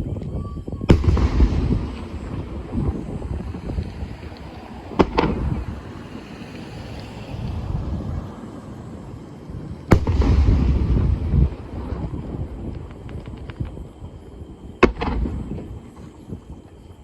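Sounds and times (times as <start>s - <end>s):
fireworks bangs: 0.8s - 6.4s, 9.8s - 16.6s
low rolling rumble: 0.9s - 8.4s, 9.1s - 16.9s.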